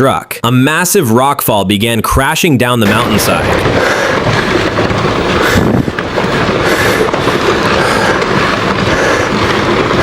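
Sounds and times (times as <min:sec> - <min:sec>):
tumbling rocks clattering: 0:02.8 - 0:10.0.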